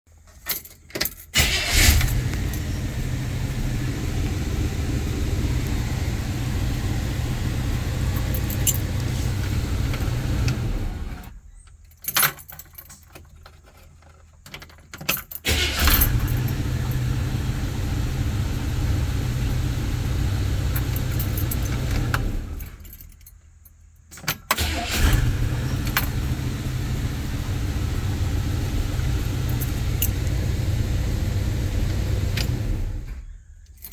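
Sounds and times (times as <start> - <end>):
car engine starting and rumbling: 1.3 - 11.6, 15.4 - 22.9, 24.6 - 33.9
engine revving: 1.4 - 11.3, 15.5 - 22.6, 24.6 - 33.2
light clicks and jingling: 5.5 - 17.1, 20.4 - 24.6, 25.6 - 26.4, 27.9 - 33.9.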